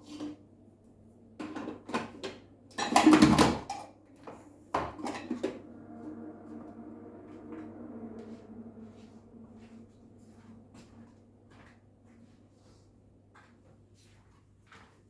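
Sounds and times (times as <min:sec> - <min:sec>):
dishes and utensils clattering: 0:01.4 - 0:03.9, 0:04.7 - 0:05.6.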